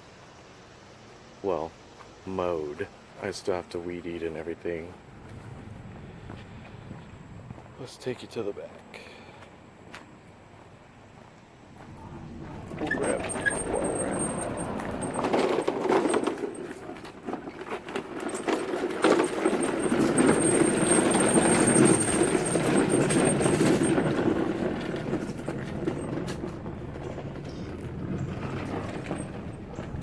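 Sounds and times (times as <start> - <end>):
lawn mower engine running: 11.9 - 30.0.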